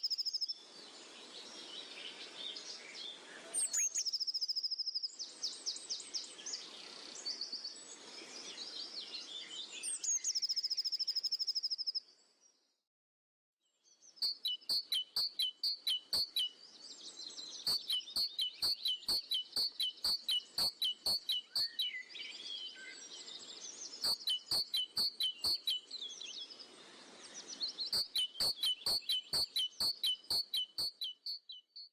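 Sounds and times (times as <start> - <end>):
bird chirp with sharp click: 0.0 - 0.5, 3.6 - 5.6, 9.8 - 12.0, 14.2 - 16.5, 17.6 - 22.0, 24.0 - 26.0, 27.6 - 31.9
birds singing in high trills: 3.6 - 4.7, 14.2 - 26.7, 27.3 - 31.7.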